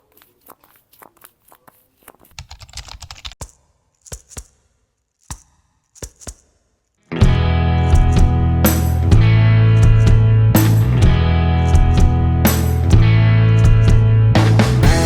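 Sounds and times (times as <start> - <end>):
paper crinkling and clicking: 0.0 - 4.4.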